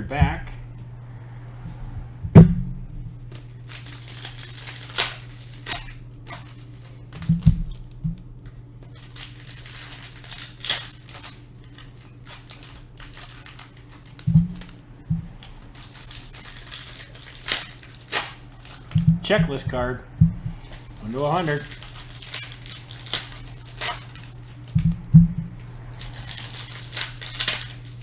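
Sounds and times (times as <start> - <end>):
low thumps: 0.0 - 3.7, 14.2 - 15.8, 18.9 - 21.0, 24.3 - 26.0
cardboard cards rustling: 0.0 - 28.0
steady low hum: 0.0 - 28.0.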